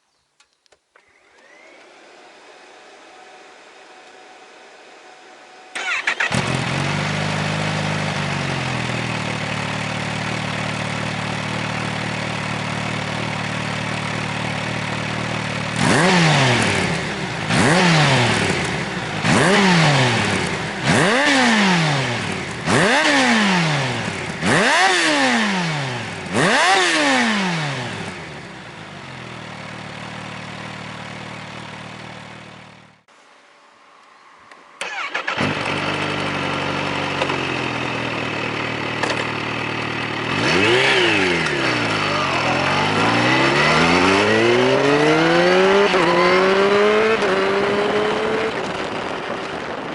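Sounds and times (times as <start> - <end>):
motorcycle engine idling: 5.8 - 15.8, 27.9 - 33.0, 35.0 - 44.2
motorcycle engine revving: 5.8 - 33.1, 34.8 - 49.9.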